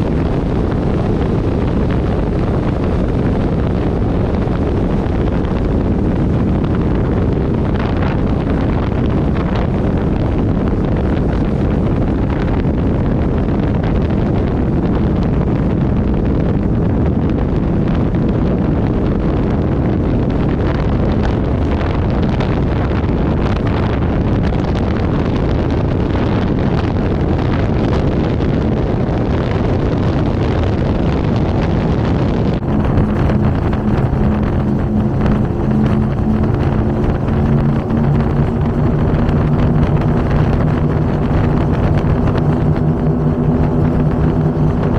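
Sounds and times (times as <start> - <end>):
powerboat engines running: 0.0 - 11.2, 32.6 - 44.9
wind buffeting microphone: 0.0 - 44.9.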